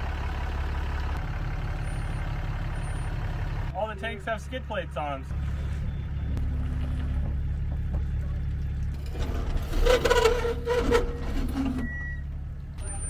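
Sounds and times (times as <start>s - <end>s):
truck engine and tyres rumbling: 0.0s - 13.0s
scraping creaking squeal: 9.0s - 13.0s.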